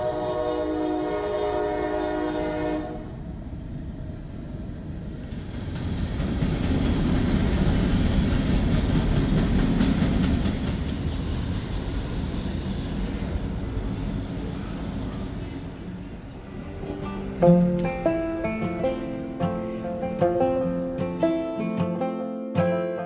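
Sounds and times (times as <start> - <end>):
locomotive horn chord: 0.0 - 3.2, 16.4 - 21.7
freight train rumbling past: 0.0 - 22.1.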